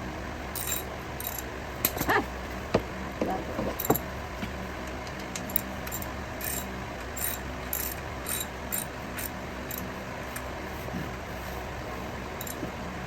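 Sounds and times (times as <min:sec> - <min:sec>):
ratchet wrench clicking: 0:00.6 - 0:01.4, 0:05.4 - 0:09.9, 0:12.4 - 0:12.6.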